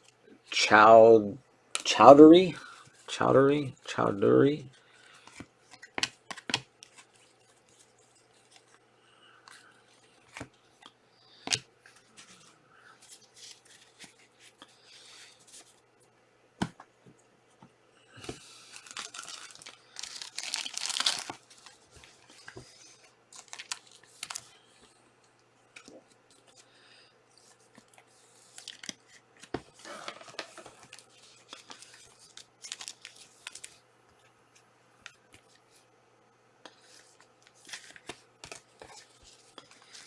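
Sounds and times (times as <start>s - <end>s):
wrappers crinkling: 18.5s - 22.5s, 23.4s - 24.5s, 29.9s - 33.7s
wrapper tearing: 18.7s - 21.8s, 23.4s - 24.5s, 32.6s - 33.7s.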